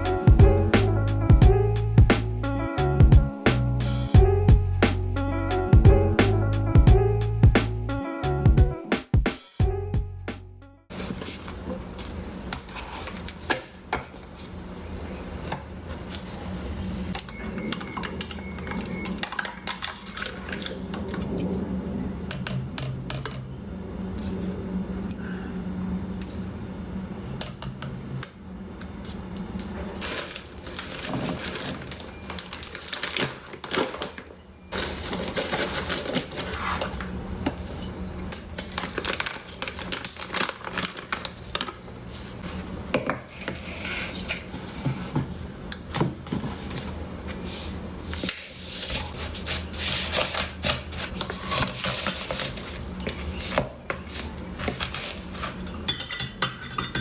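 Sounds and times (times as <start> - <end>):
low hum: 0.0 - 8.8
dishes clinking and clattering: 54.9 - 57.0.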